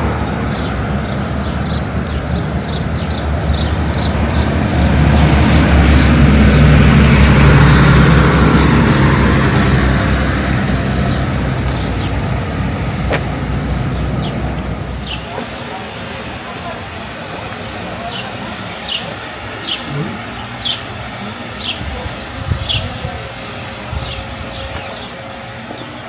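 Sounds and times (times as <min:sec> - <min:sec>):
vehicle passing by: 0:00.0 - 0:15.4
small birds chirping: 0:00.0 - 0:15.8, 0:18.0 - 0:26.0.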